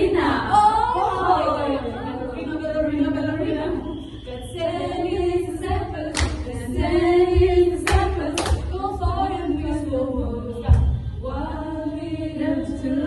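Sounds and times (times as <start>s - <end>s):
group of voices singing: 0.0s - 13.0s
sharp claps: 6.1s - 6.5s, 7.8s - 8.7s.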